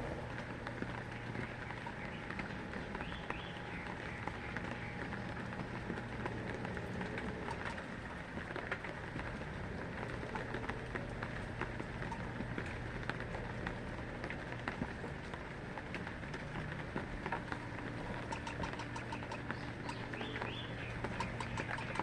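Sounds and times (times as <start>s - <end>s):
low hum: 0.0s - 22.0s
rain drops ticking: 0.0s - 22.0s.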